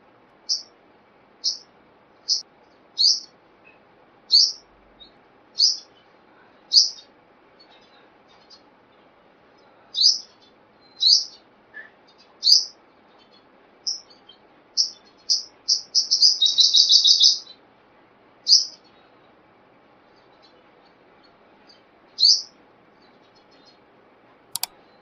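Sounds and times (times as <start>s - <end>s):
sunbird chirping and trilling: 0.5s - 0.7s, 1.4s - 2.4s, 3.0s - 3.4s, 4.3s - 6.1s, 6.7s - 8.6s, 9.9s - 11.4s, 12.1s - 17.6s.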